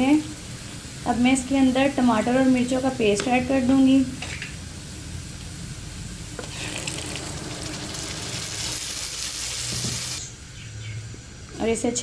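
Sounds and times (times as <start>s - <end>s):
onions sizzling in hot oil: 0.0s - 12.0s
paste poured into hot oil: 6.4s - 10.2s.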